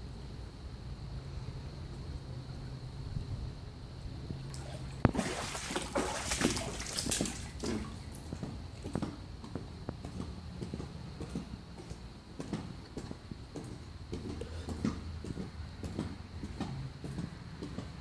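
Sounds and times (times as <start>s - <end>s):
water sloshing and splashing: 4.3s - 9.3s.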